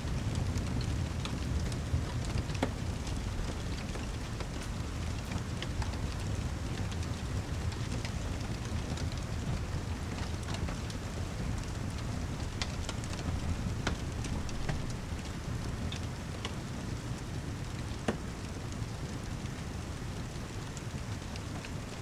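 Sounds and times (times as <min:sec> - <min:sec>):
heavy rain: 0:00.0 - 0:22.0
fire ticking and popping: 0:00.1 - 0:22.0.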